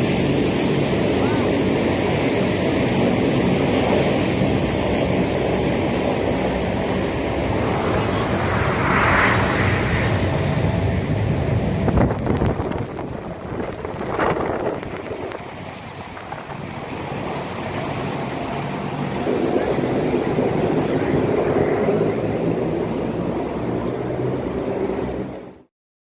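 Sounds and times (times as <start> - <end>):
airliner engines running: 0.0 - 25.7.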